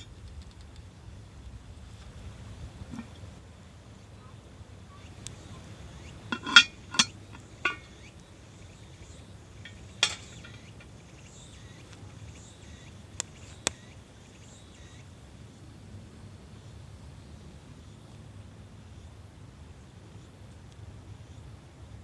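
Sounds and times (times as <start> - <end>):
utensils clinking on cookware: 6.3 - 7.9, 9.6 - 10.8.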